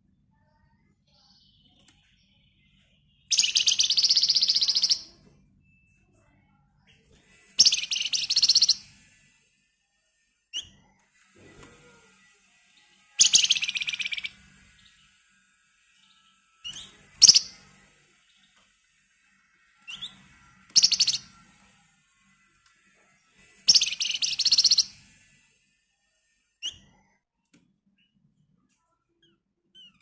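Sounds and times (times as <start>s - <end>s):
songbird rattling trills: 3.3s - 5.1s, 7.6s - 8.8s, 13.2s - 14.3s, 16.7s - 17.6s, 20.7s - 21.3s, 23.7s - 24.9s.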